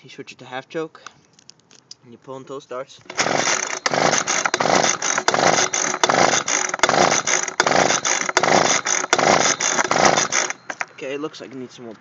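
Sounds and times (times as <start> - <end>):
engine turning over: 3.1 - 10.9
starter cord yanked: 3.1 - 11.0.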